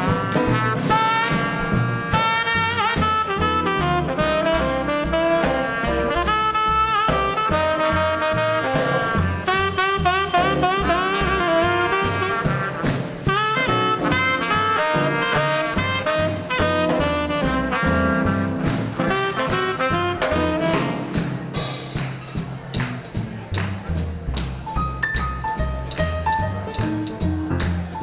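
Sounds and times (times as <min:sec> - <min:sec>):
saxophone melody: 0:00.0 - 0:21.3
trumpet melody: 0:00.0 - 0:21.7
drums: 0:00.0 - 0:28.0
piano: 0:00.0 - 0:28.0
swing band playing: 0:00.0 - 0:28.0
walking bass: 0:00.0 - 0:28.0.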